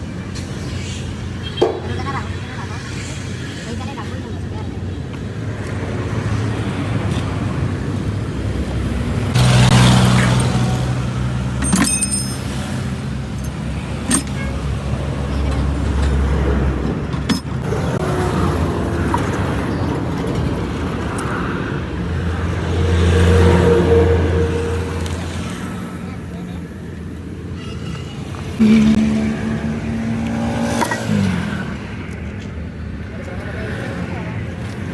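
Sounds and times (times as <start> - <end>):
vehicles passing: 0.0 - 34.9
metallic clinks: 11.6 - 14.4.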